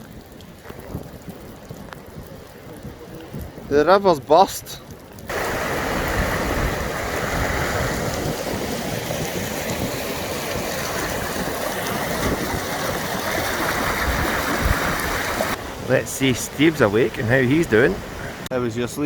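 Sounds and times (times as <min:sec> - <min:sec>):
river rushing loudly: 0:05.3 - 0:19.0.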